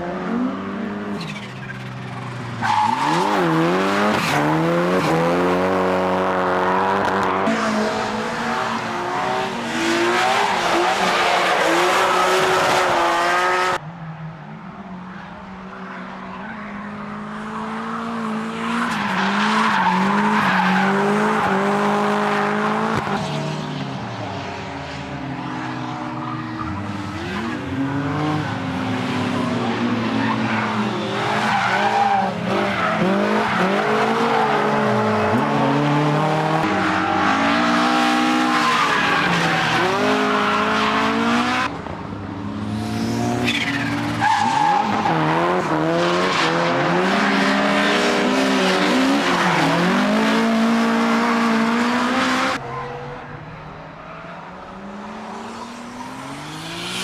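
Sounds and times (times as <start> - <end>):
car engines revving: 0.0 - 57.0
tyres skidding: 0.3 - 13.8, 16.2 - 41.7, 42.7 - 57.0.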